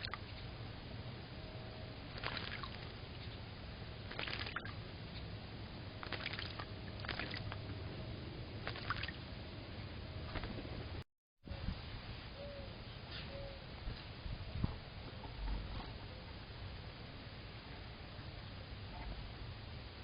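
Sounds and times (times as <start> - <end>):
low steady hum: 0.0 - 20.0
bird splashing in water: 2.1 - 2.9, 4.1 - 4.8, 6.0 - 7.6, 8.6 - 9.2.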